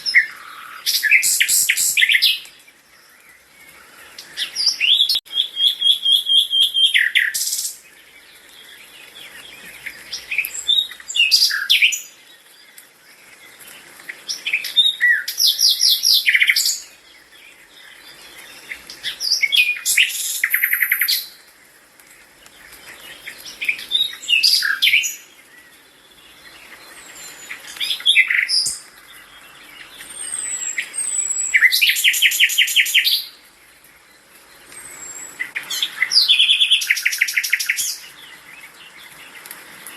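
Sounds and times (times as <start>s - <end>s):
faint bird chirps: 0.0s - 21.8s
songbird singing: 0.0s - 39.9s.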